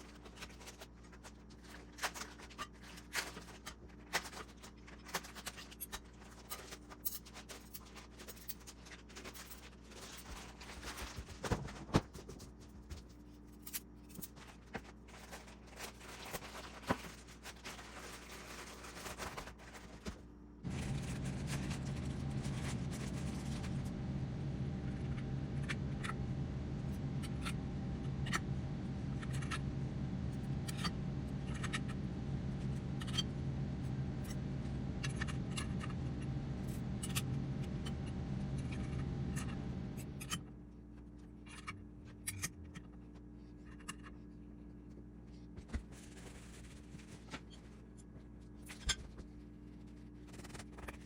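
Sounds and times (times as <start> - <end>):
machine hum: 14.0 - 48.6.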